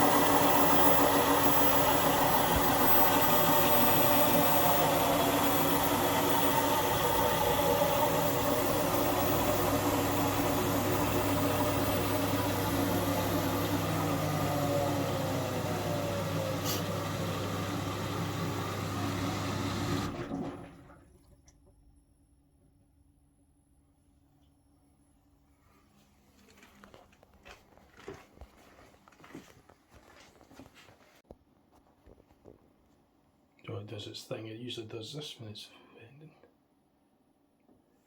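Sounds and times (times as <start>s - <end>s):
washing machine drum motor running: 0.0s - 20.9s.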